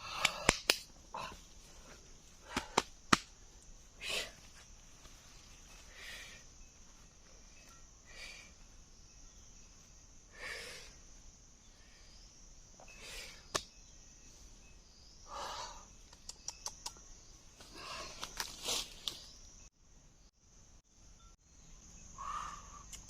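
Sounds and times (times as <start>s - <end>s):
insects droning: 0.0s - 23.0s
sharp clicks: 16.1s - 17.0s.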